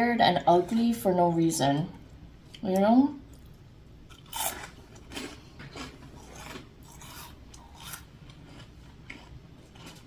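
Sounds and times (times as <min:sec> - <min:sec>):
person chewing crunchy food: 0:03.3 - 0:10.0.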